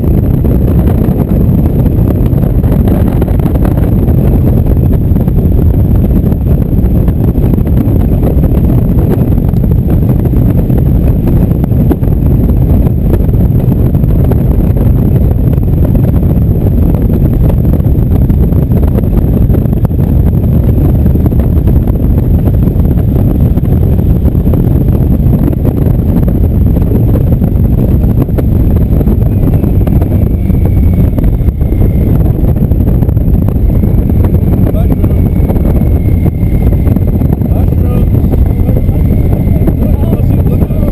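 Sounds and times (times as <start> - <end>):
wind rush on microphone: 0.0 - 40.9
motorcycle engine cruising: 12.7 - 40.9.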